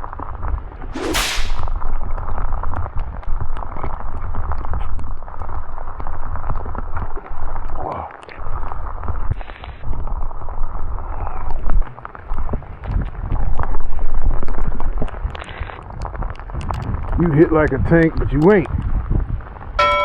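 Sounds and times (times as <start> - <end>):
sharp swish: 0.9 - 1.8
rain pattering: 1.9 - 19.8
wind buffeting microphone: 9.0 - 19.8.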